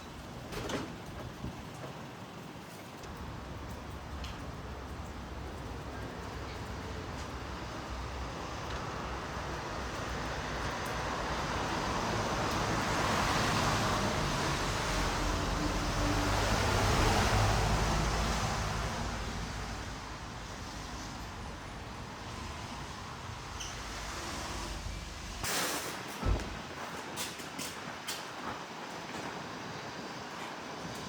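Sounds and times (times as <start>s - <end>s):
vehicle passing by: 9.9s - 25.4s.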